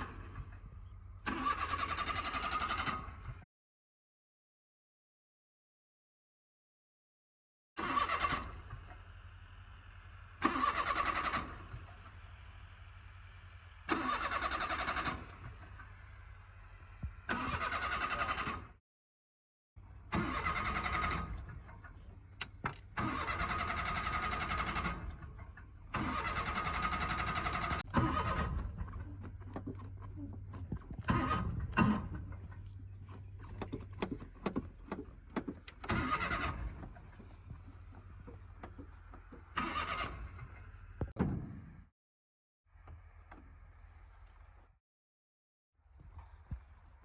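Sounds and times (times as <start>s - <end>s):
car engine cranking on starter: 1.2s - 3.2s, 7.8s - 8.9s, 10.4s - 11.8s, 13.8s - 15.4s, 17.2s - 18.7s, 20.0s - 28.9s, 30.9s - 32.4s, 33.6s - 40.8s.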